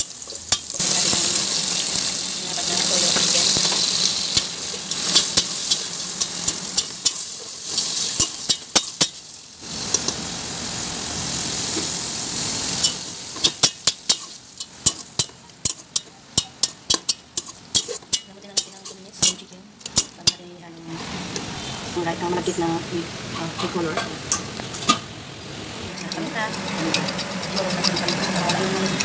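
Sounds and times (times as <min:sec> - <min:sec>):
chicken sizzling in hot oil: 0:00.0 - 0:22.0, 0:24.3 - 0:29.0
metal spoon scraping a pot: 0:02.6 - 0:09.1, 0:12.8 - 0:20.4, 0:25.9 - 0:29.0.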